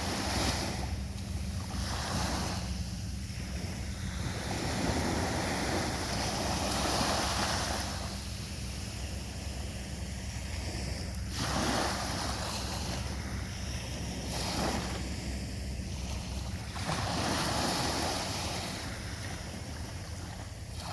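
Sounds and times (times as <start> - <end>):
sea waves breaking on beach: 0.0 - 20.9.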